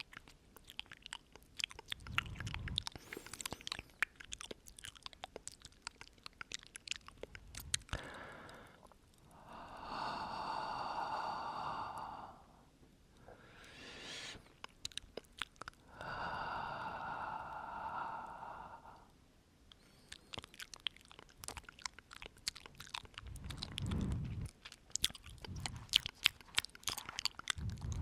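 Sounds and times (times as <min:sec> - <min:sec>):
wet mouth clicks and lip smacks: 0:00.0 - 0:09.3, 0:14.2 - 0:15.8, 0:19.7 - 0:28.0
breath exhaled onto microphone: 0:13.4 - 0:14.5, 0:23.2 - 0:24.5.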